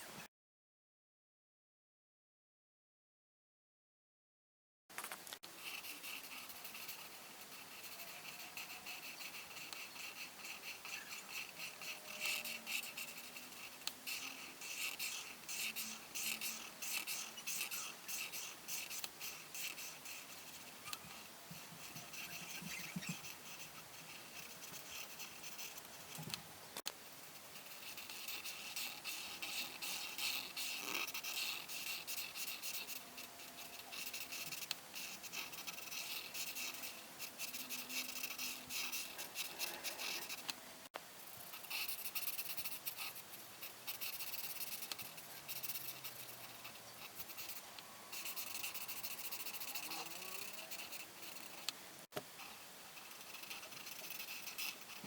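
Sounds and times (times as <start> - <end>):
pen scratching on paper: 5.6 - 26.4, 27.2 - 40.5, 41.2 - 51.8, 52.4 - 55.0.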